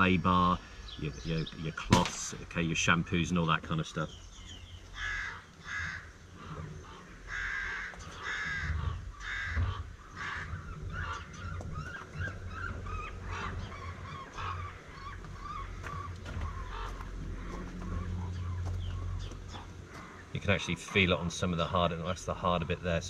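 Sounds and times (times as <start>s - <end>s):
soft wavering bird calls: 3.7s - 22.2s
bird cawing harshly: 5.0s - 18.2s.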